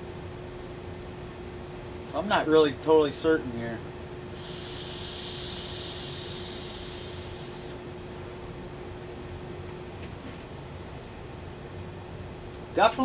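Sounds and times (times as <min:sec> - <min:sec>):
air conditioner humming: 0:00.0 - 0:13.0
loud high hiss: 0:04.3 - 0:07.8.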